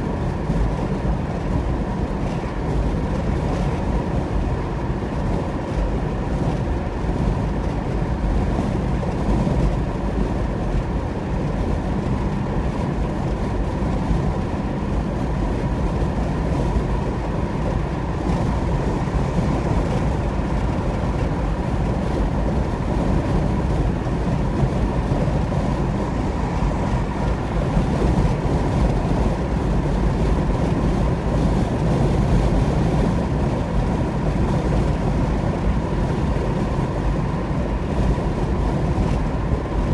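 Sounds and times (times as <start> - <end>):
car road noise at speed: 0.0 - 39.9.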